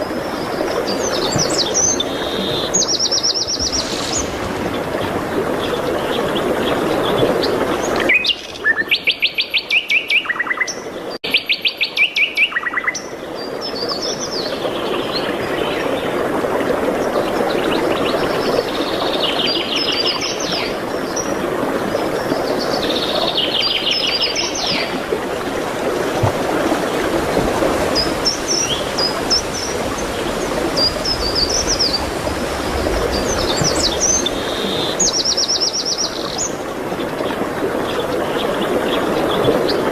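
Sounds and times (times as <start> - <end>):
songbirds trilling: 27.8 - 39.9.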